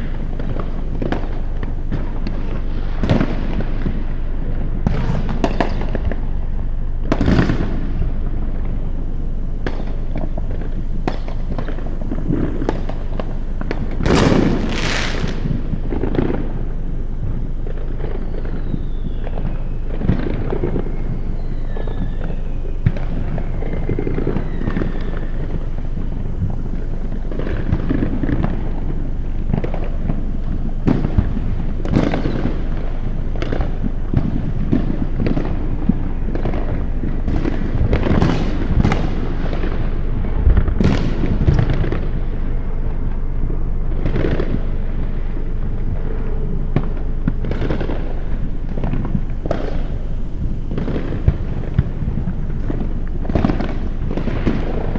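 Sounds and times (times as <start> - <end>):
falling firework whistles: 0.0 - 3.9, 9.1 - 39.9, 47.5 - 54.9
fireworks bangs and crackles: 0.0 - 54.9
fireworks booming: 0.0 - 54.9.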